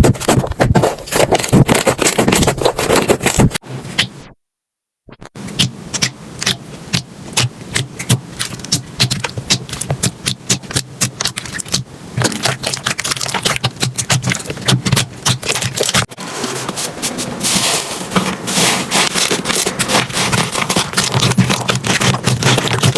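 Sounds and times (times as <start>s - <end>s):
slime crackling and popping: 5.6s - 16.1s, 18.9s - 22.9s.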